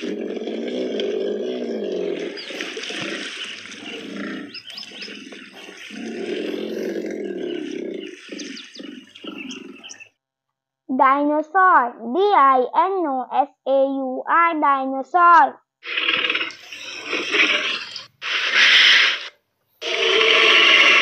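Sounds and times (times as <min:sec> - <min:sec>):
hippopotamus roaring: 0:00.0 - 0:10.0, 0:15.8 - 0:21.0.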